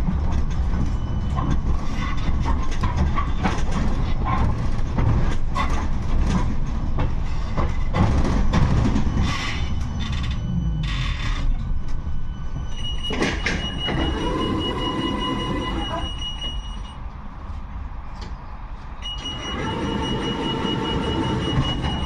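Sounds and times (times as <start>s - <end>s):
tram rumbling on rails: 0.0s - 22.0s.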